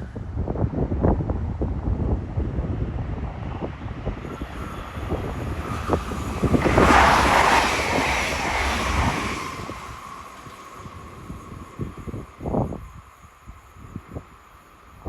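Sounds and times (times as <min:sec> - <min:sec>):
electric train passing: 0:00.0 - 0:15.0
steady whine: 0:03.7 - 0:15.0.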